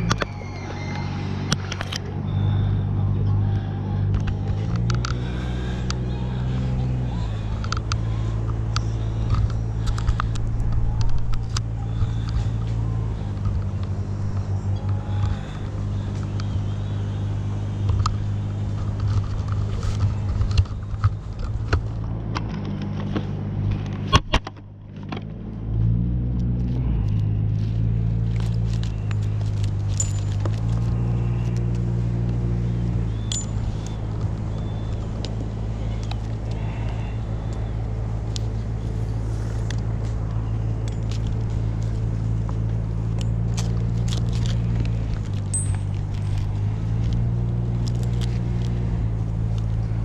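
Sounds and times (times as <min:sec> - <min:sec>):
engine running: 0:00.0 - 0:50.0
sharp clicks: 0:04.1 - 0:15.5
light metallic jingles: 0:28.4 - 0:31.6, 0:33.0 - 0:36.8, 0:40.4 - 0:48.8.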